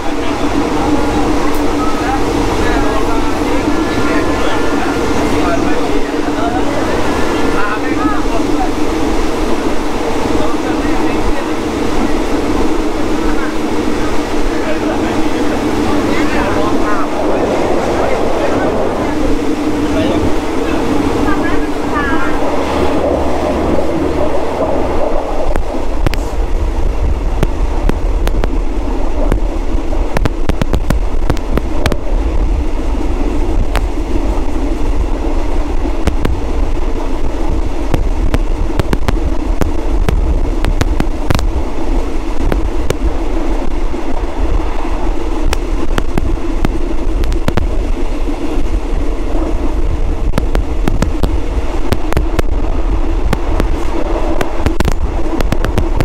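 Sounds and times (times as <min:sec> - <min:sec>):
train rumble and hum: 0:00.0 - 0:56.0
sharp clicks and knocks: 0:37.9 - 0:41.5.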